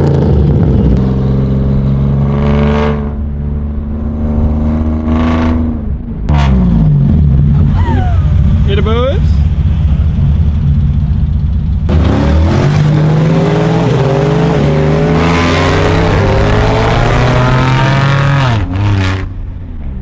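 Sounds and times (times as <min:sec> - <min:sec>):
car engine revving and accelerating: 0:00.0 - 0:07.8, 0:11.9 - 0:19.5.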